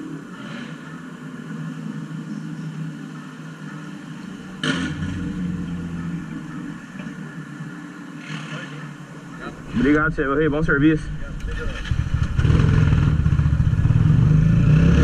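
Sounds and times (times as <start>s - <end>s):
low vehicle hum: 0.0s - 8.2s, 9.0s - 15.0s
loud noisy rumble: 9.6s - 15.0s.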